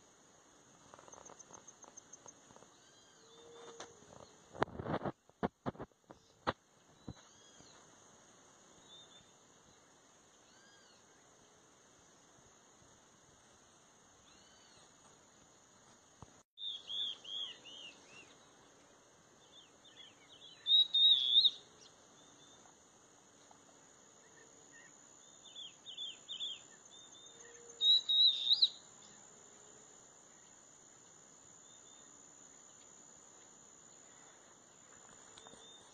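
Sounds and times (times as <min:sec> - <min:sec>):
high insect drone: 0:00.0 - 0:35.9
birds chirping: 0:16.6 - 0:22.8, 0:24.2 - 0:29.2.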